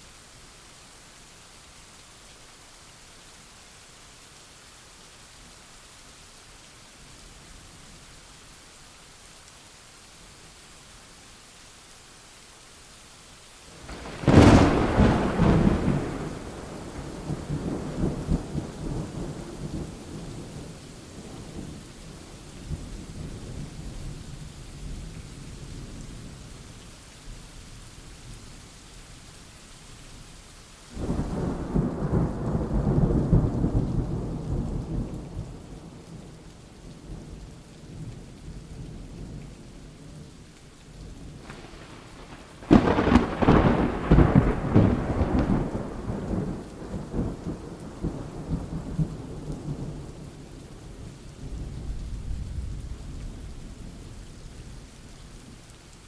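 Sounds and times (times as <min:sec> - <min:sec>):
rain falling: 0:00.0 - 0:56.0
thunder rumbling: 0:13.8 - 0:21.6, 0:31.0 - 0:36.0, 0:41.3 - 0:50.2
thunderclap: 0:13.9 - 0:19.8, 0:41.4 - 0:49.0.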